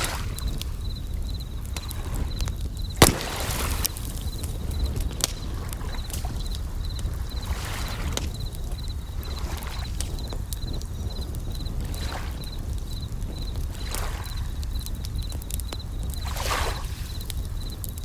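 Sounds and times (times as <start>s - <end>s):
crackling campfire: 0.0s - 18.0s
crickets chirping: 0.0s - 18.0s
fire popping: 0.0s - 18.0s
waves washing: 2.0s - 11.2s.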